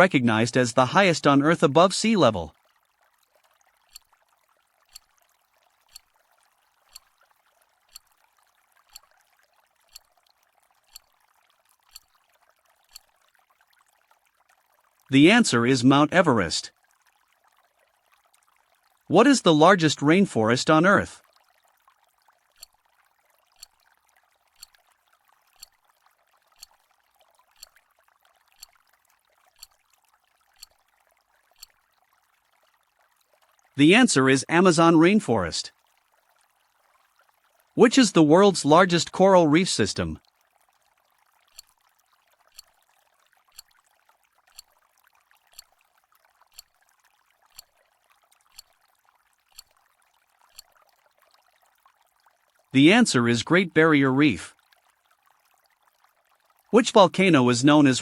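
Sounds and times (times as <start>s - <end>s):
timer ticking: 3.9s - 4.2s, 4.9s - 5.2s, 5.8s - 6.2s, 6.9s - 7.2s, 7.9s - 8.2s, 8.9s - 9.1s, 9.9s - 10.2s, 10.9s - 11.2s, 11.8s - 12.2s, 12.9s - 13.2s, 22.6s - 22.8s, 23.6s - 23.8s, 24.6s - 24.8s, 25.6s - 25.8s, 26.6s - 26.8s, 27.6s - 27.8s, 28.6s - 28.8s, 29.5s - 29.8s, 30.6s - 30.8s, 31.6s - 31.8s, 41.5s - 41.8s, 42.5s - 42.7s, 43.5s - 43.8s, 44.5s - 44.7s, 45.5s - 45.7s, 46.5s - 46.8s, 47.5s - 47.7s, 48.5s - 48.8s, 49.5s - 49.8s
clock ticking: 5.9s - 6.1s, 6.9s - 7.1s, 8.9s - 9.1s, 10.9s - 11.1s, 11.9s - 12.1s, 30.6s - 30.8s, 45.5s - 45.7s, 46.5s - 46.7s, 49.5s - 49.8s.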